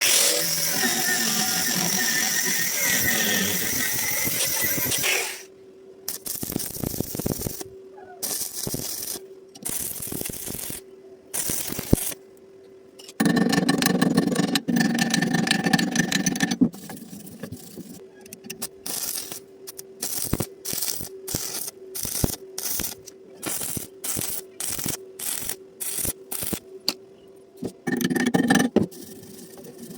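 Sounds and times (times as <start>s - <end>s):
welding arc crackling: 0.0s - 5.5s, 6.1s - 12.2s, 18.6s - 26.6s
faint steady hum: 0.1s - 29.9s.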